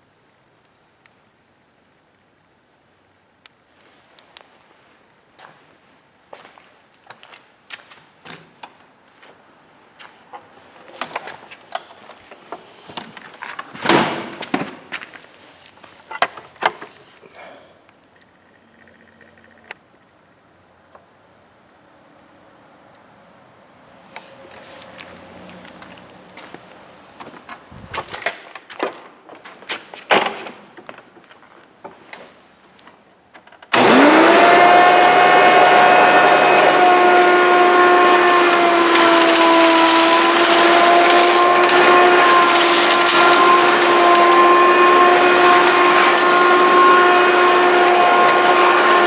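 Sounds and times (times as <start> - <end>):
scraping rustle: 24.0 - 28.7, 35.4 - 49.0
vacuum cleaner whining: 33.7 - 49.0.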